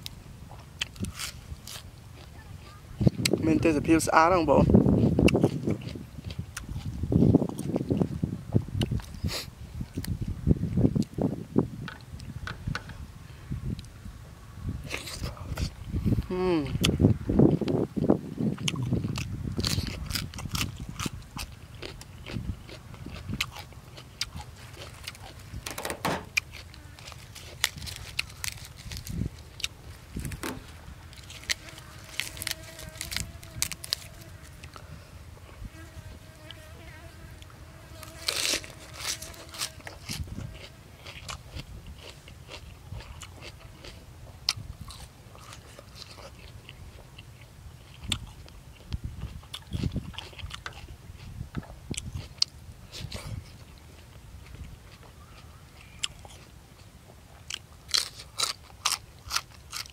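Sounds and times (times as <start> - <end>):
crunching of fresh vegetables: 0.0 - 3.4, 4.3 - 8.2, 17.6 - 35.7, 37.9 - 59.9
chewing and mouth smacking: 0.5 - 3.4, 4.9 - 8.2, 8.8 - 9.3, 16.6 - 30.4, 38.0 - 59.9.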